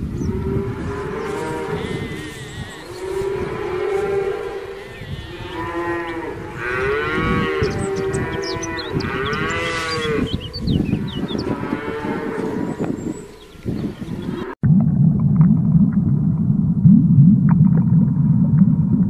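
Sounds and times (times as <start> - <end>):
cattle mooing: 0.4 - 13.4.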